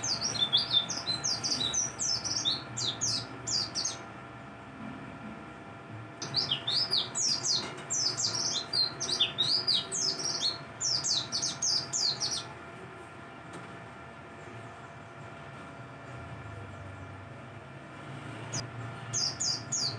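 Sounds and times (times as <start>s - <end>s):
bird twittering song: 0.0s - 4.0s, 6.2s - 12.5s, 19.0s - 19.9s.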